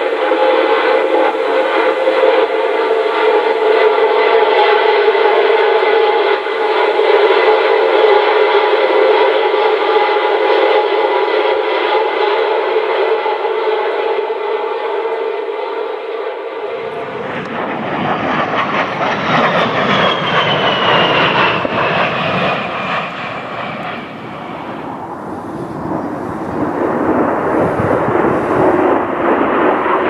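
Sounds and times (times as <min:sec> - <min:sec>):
steady pitched hum: 0:00.0 - 0:19.8
jet aircraft roar passing: 0:00.0 - 0:30.0.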